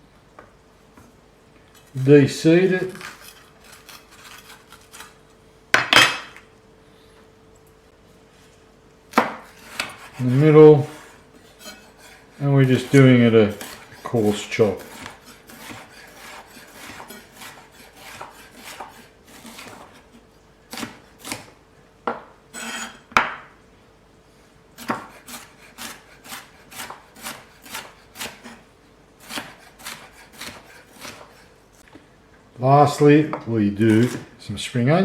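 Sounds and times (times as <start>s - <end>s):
knife chopping on board: 9.1s - 11.0s, 12.8s - 20.0s, 20.7s - 21.5s, 24.8s - 28.6s, 29.2s - 31.4s.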